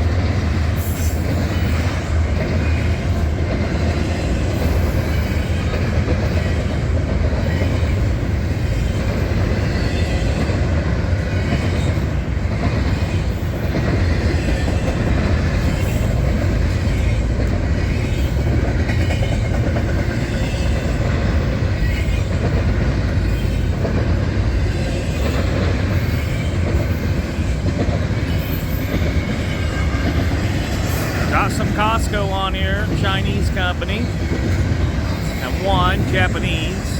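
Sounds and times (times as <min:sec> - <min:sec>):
freight train cars rolling past: 0:00.0 - 0:36.9.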